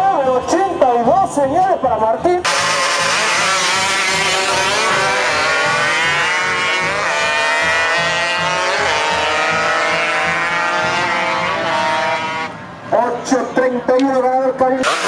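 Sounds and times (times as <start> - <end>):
motorcycle engine accelerating: 2.5 - 12.6.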